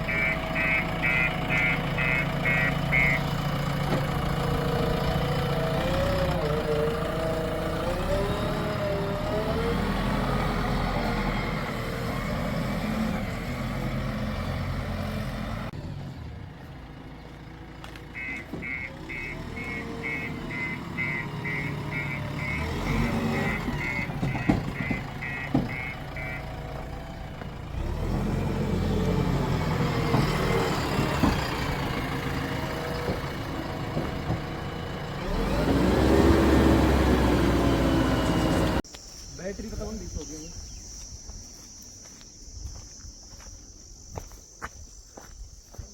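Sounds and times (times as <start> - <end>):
reversing alarm beeping: 0.0 - 3.4, 18.2 - 26.7
diesel engines under load: 0.0 - 45.9.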